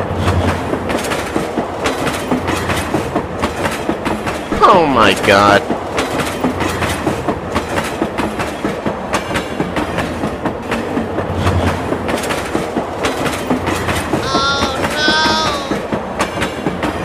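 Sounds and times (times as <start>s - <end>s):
train wheels clicking over rail joints: 0.0s - 4.5s, 5.6s - 14.1s.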